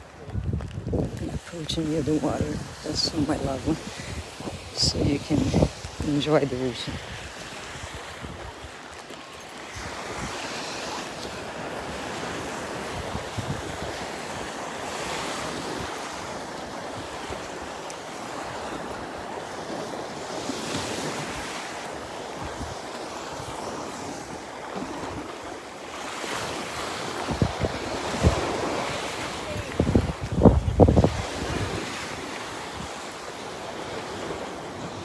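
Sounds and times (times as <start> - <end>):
wind buffeting microphone: 0.0 - 9.0, 9.6 - 17.8, 26.3 - 33.0
waves washing onto beach: 0.0 - 35.0.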